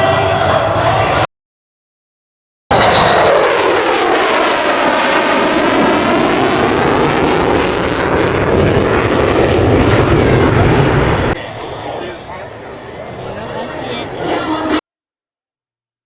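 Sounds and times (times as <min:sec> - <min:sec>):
airplane flying low overhead: 0:02.7 - 0:14.8.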